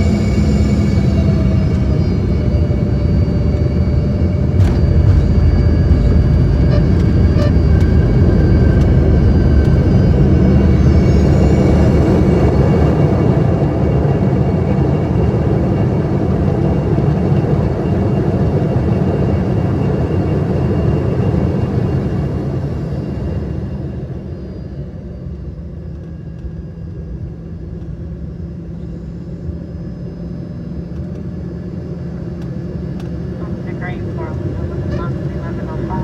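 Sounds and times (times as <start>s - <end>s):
jet cabin rumble: 0.0s - 15.0s, 25.2s - 36.0s
turbofan whine: 0.0s - 36.0s.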